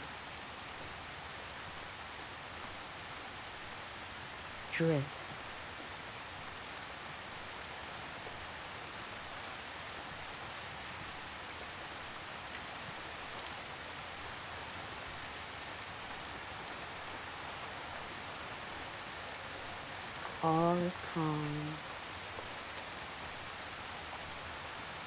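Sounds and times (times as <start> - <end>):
raindrop ticks: 0.0 - 20.4, 21.1 - 25.0
gentle rain falling: 0.0 - 25.0.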